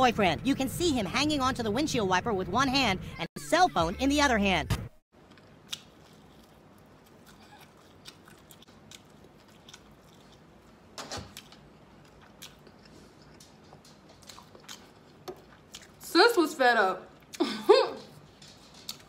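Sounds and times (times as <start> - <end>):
chewing crunchy food: 5.2 - 16.0, 18.2 - 19.0.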